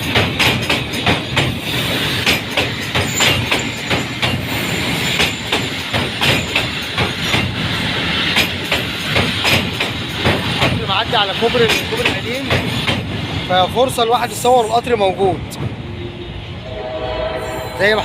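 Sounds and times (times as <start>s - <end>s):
train wheels clacking on rails: 0.0s - 15.8s
train rumble: 0.0s - 18.0s.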